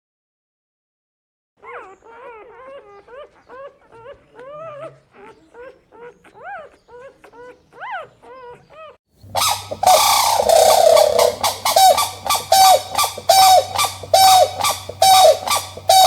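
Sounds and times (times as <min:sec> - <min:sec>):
loud harsh animal call: 0:09.3 - 0:16.0.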